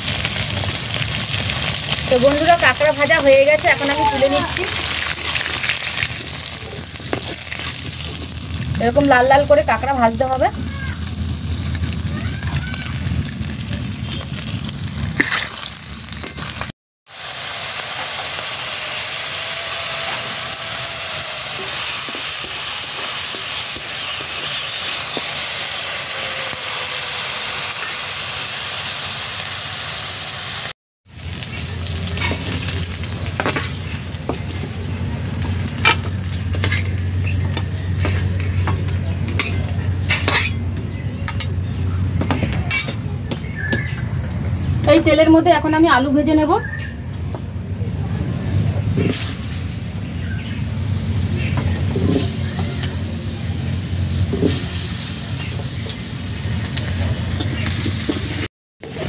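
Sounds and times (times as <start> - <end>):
food frying in hot oil: 0.0 - 40.7, 49.0 - 59.0.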